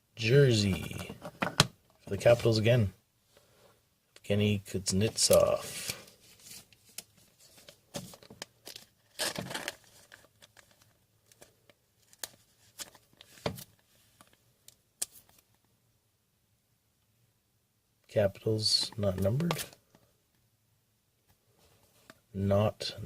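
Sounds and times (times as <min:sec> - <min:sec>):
packaging tearing: 0:08.7 - 0:10.8.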